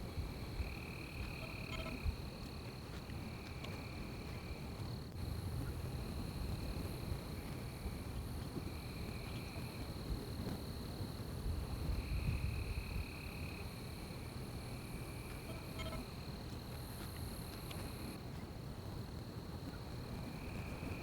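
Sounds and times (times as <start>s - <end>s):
insect steady high trill: 0.3s - 2.4s, 11.8s - 18.2s
insect calling in stretches: 15.4s - 16.2s.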